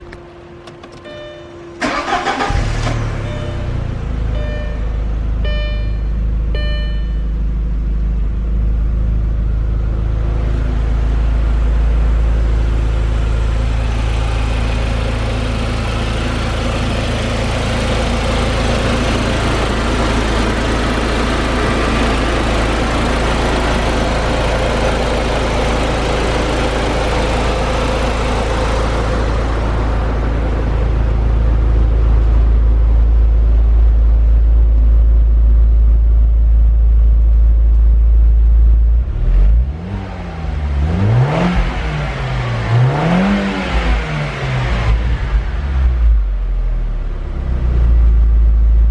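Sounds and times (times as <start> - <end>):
car engine idling: 0.0 - 48.9
short electronic beeps: 1.0 - 1.6, 3.1 - 7.4.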